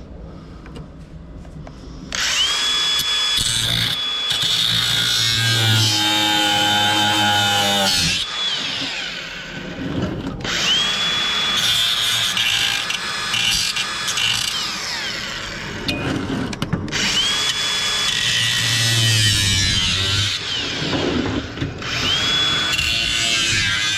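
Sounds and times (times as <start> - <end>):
power drill motor whine: 2.1 - 23.9.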